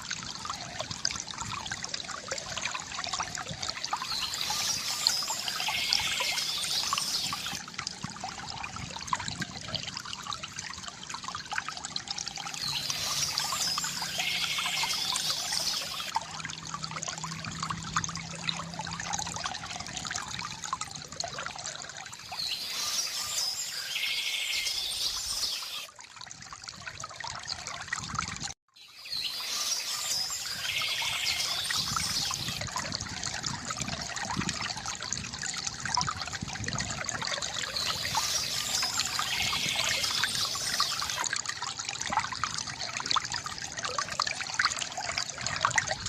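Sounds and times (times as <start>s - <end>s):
water trickling from fountain spout: 0.0s - 46.0s
bird chirping and trilling: 4.0s - 7.6s, 12.6s - 16.1s, 22.2s - 25.9s, 28.8s - 32.6s, 37.5s - 41.2s.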